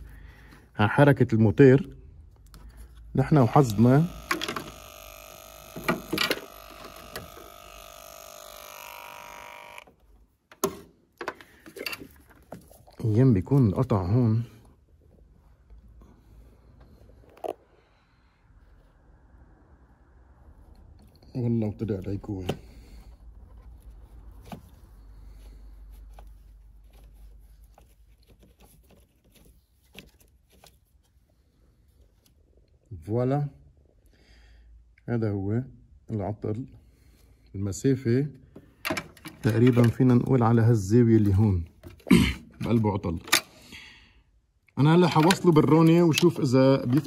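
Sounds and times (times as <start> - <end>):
low steady hum: 1.9 - 10.0
electrical buzz: 3.4 - 9.9
wiring rustling and clicking: 26.0 - 31.3, 38.8 - 40.5, 44.9 - 47.0.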